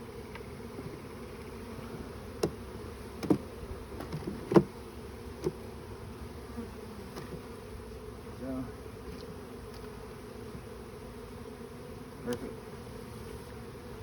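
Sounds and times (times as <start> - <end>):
honeybee swarm buzzing: 0.0 - 14.0
knocks of wooden hive box: 2.0 - 4.8, 5.4 - 5.6, 7.1 - 7.5.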